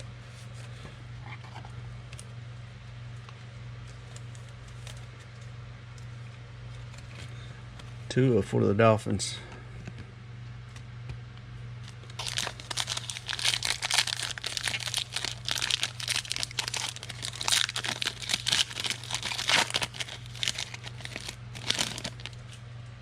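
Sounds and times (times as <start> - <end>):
steady low hum: 0.0 - 23.0
wrapper tearing and crinkling: 11.8 - 22.6.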